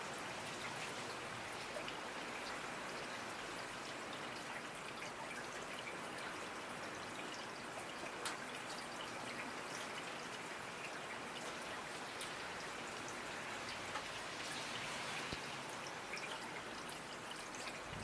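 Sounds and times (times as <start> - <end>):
steady rain hiss: 0.0 - 18.0
raindrops ticking: 7.8 - 14.4.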